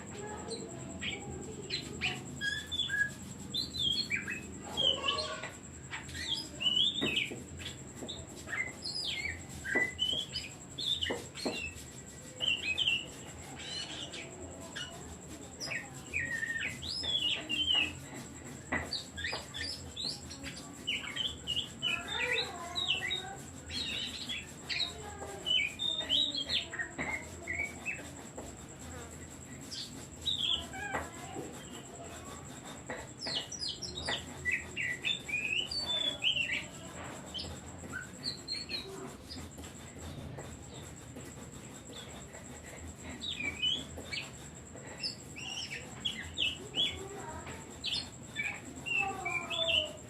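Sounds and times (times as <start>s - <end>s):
bird singing whistles and chirps: 0.2s - 15.0s, 15.6s - 18.0s, 29.7s - 32.0s, 43.2s - 44.4s.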